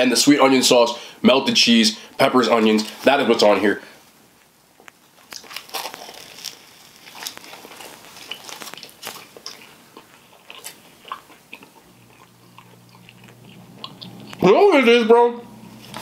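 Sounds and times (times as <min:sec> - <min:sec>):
mouth clicks and crunches: 0:04.4 - 0:14.5
person biting and chewing: 0:04.8 - 0:14.4.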